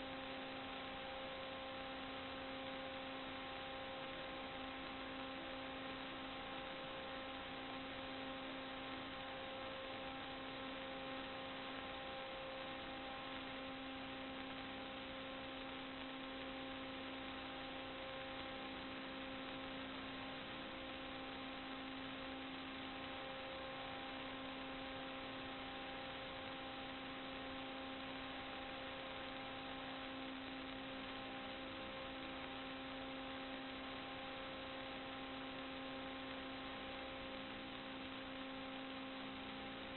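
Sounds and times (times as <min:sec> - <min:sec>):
constant hiss: 0:00.0 - 0:39.9
electrical hum: 0:00.0 - 0:39.9.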